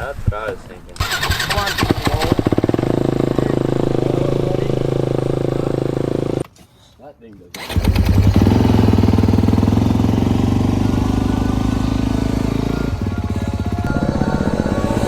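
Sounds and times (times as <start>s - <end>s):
dirt bike engine running: 1.1s - 6.4s, 7.6s - 15.0s.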